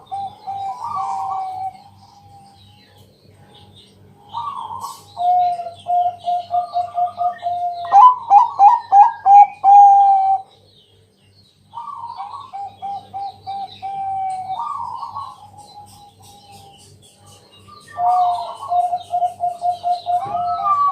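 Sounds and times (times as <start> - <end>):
dove cooing: 0.0 - 2.5, 4.3 - 10.5, 11.7 - 16.6, 17.9 - 20.9.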